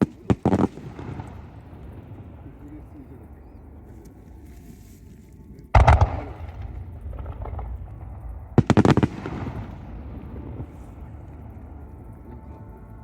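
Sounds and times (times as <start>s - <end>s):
fireworks bangs: 0.0s - 3.6s, 5.8s - 13.0s
low rumble: 5.6s - 13.0s.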